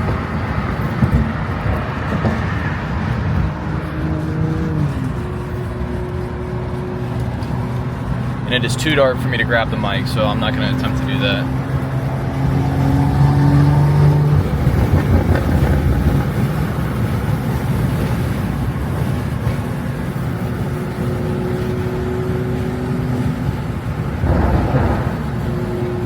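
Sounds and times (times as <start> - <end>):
car engine cruising: 0.0 - 26.0
road and wind noise: 0.0 - 26.0.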